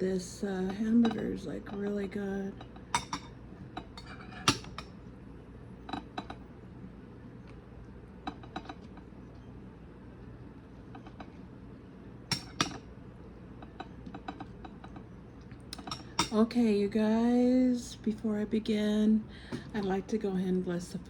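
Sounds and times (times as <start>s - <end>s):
utensils clinking against dishes: 0.6s - 2.0s, 2.6s - 4.9s, 12.3s - 12.9s, 13.6s - 15.0s, 15.7s - 16.5s.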